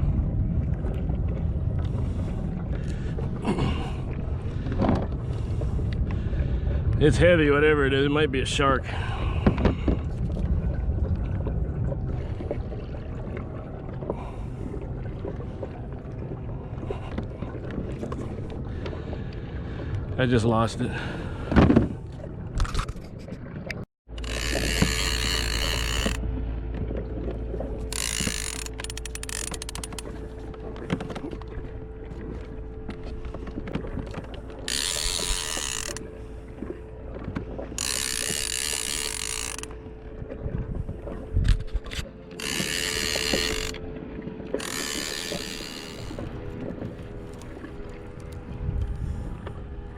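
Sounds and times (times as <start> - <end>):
fishing reel cranking: 24.1 - 26.2, 27.8 - 30.2, 34.5 - 36.1, 37.8 - 39.8, 41.5 - 43.8, 44.6 - 48.4
rapid reel clicks: 24.2 - 26.2, 27.9 - 30.1, 34.7 - 36.0, 37.8 - 39.7, 42.4 - 43.8, 44.6 - 46.2.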